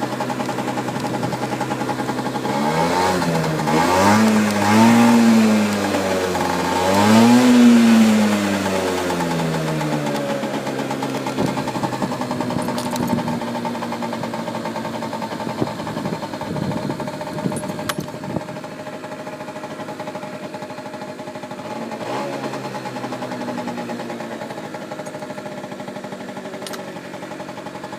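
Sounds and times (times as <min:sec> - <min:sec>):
scooter engine idling: 0:00.0 - 0:27.9
sharp clicks: 0:26.6 - 0:26.9.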